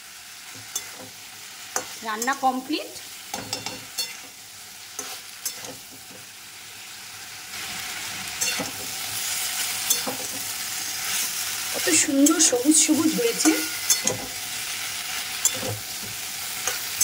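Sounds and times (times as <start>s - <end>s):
vegetables sizzling in a wok: 0.0s - 17.0s
spatula scraping and tapping pan: 0.5s - 2.5s, 3.3s - 4.4s, 5.0s - 6.3s, 8.4s - 9.2s, 9.8s - 10.5s, 11.8s - 14.4s, 15.4s - 17.0s.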